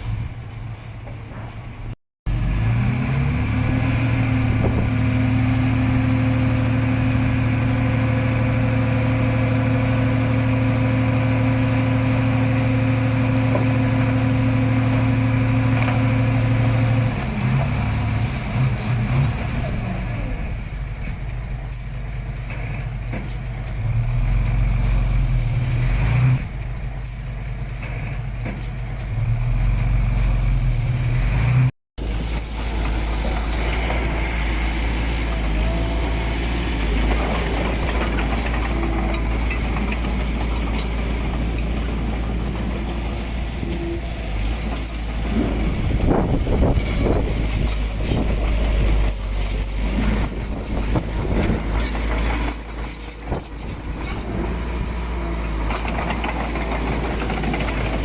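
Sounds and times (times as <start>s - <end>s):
heavy diesel engine under load: 0.0s - 58.0s
metal scraping and clanking: 32.0s - 58.0s.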